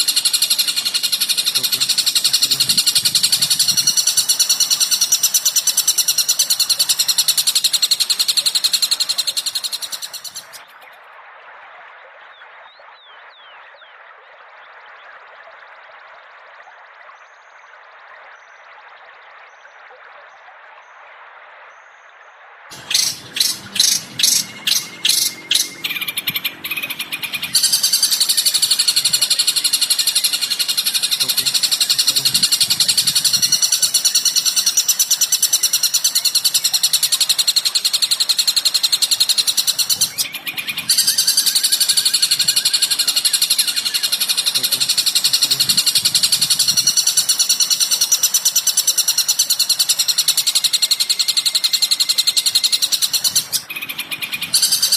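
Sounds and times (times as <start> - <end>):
bird chattering trill: 0.0 - 10.6, 22.7 - 54.9
bird chip notes: 0.0 - 10.6, 22.7 - 54.9.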